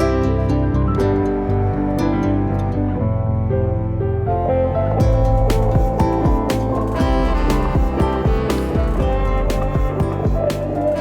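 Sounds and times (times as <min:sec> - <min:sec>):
soft string instrumental music: 0:00.0 - 0:11.0.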